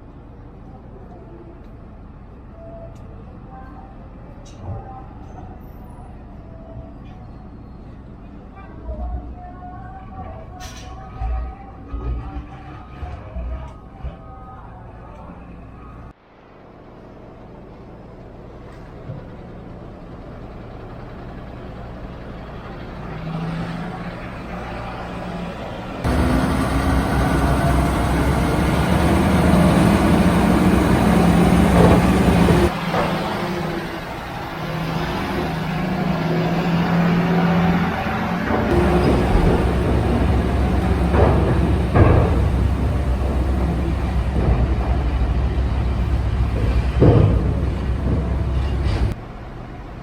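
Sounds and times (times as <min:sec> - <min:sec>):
diesel truck engine running: 0:16.8 - 0:50.0.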